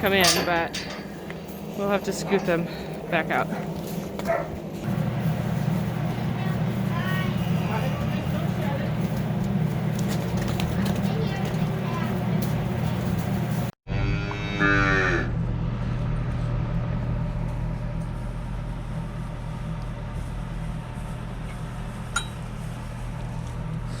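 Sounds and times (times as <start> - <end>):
steady low hum: 0.0 - 13.7, 15.1 - 24.0
calf mooing: 13.9 - 15.3.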